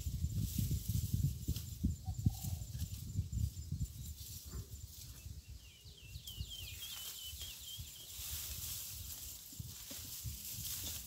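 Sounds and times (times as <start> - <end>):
small bird chirping: 1.8 - 9.7.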